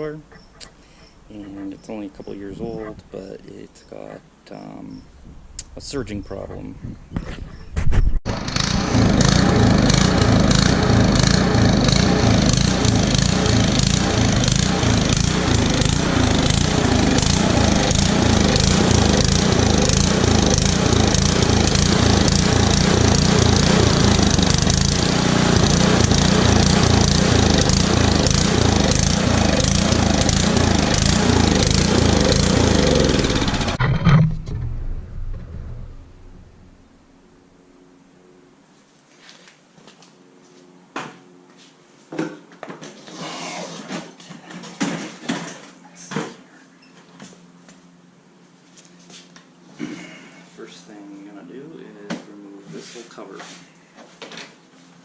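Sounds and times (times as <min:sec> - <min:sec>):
snowblower engine surging: 0:08.3 - 0:36.8.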